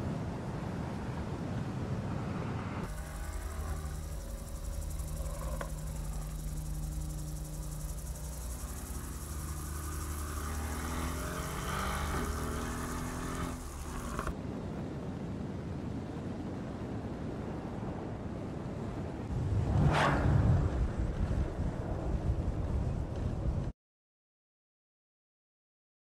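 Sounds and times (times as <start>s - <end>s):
wind: 0.0s - 23.7s
road hiss: 2.8s - 14.3s
car engine pulling hard: 2.8s - 14.4s.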